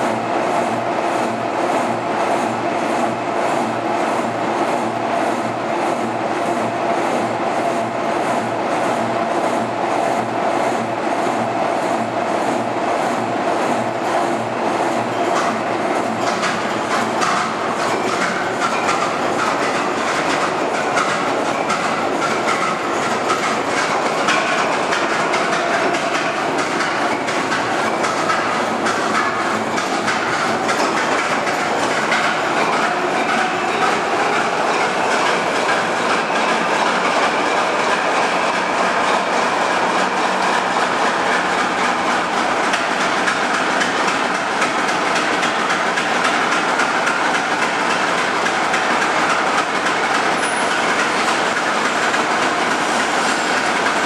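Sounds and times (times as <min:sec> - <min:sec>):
locomotive rolling on rails: 0:00.0 - 0:54.0.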